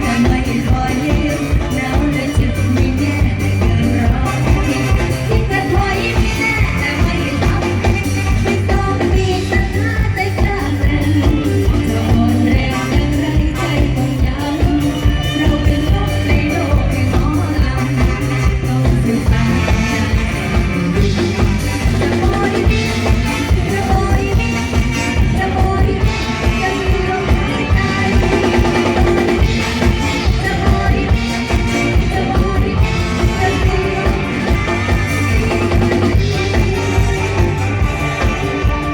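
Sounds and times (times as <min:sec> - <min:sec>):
band with fast beat and bass: 0:00.0 - 0:38.9
person singing: 0:00.0 - 0:38.9.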